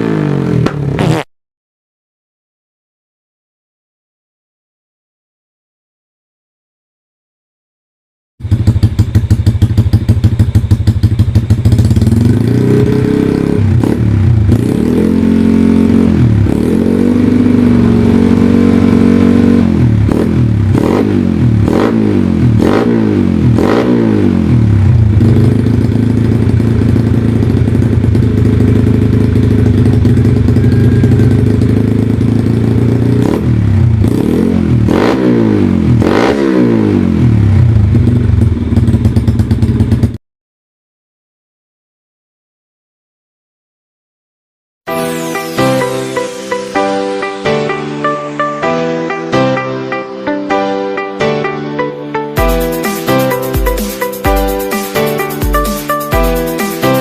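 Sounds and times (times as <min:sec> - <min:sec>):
motorcycle engine idling and revving: 0:00.0 - 0:01.3, 0:08.4 - 0:40.2.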